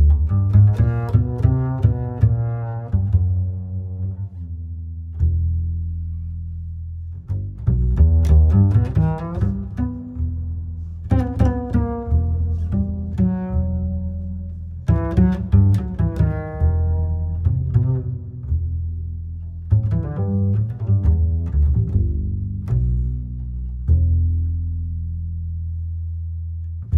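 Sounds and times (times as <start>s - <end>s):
plucked string music: 7.3s - 25.2s.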